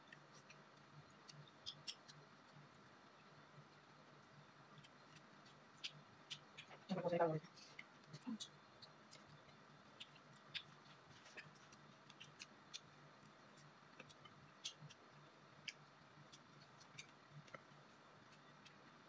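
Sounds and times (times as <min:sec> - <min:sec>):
faint low hum: 0:00.0 - 0:19.0
people chewing crispy food: 0:00.0 - 0:19.0.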